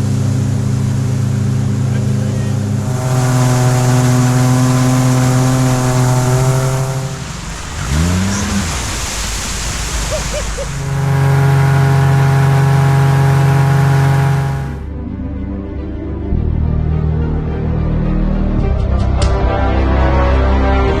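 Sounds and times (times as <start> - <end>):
outboard boat engine running: 0.0 - 14.9.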